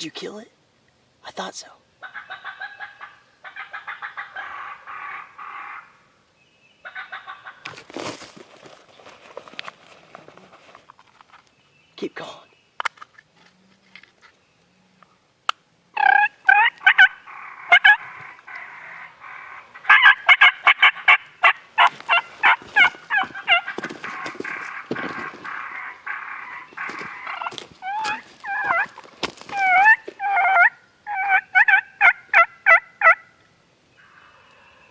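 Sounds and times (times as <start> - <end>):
turkey gobbling: 2.0 - 6.0, 6.8 - 7.7, 16.0 - 33.4.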